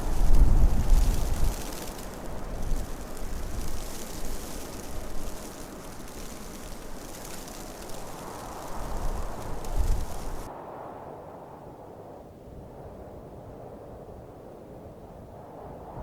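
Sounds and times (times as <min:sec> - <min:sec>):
wind buffeting microphone: 0:00.0 - 0:10.5
blizzard wind hissing: 0:00.0 - 0:10.8.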